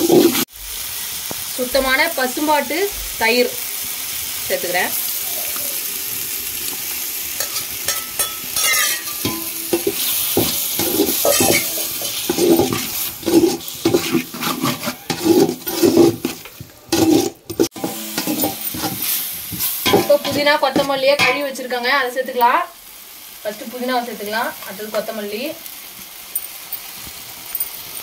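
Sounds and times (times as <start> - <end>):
metal spatula scraping a pot: 0.0 - 0.5, 7.4 - 21.5
masala sizzling in a metal pot: 0.0 - 28.0.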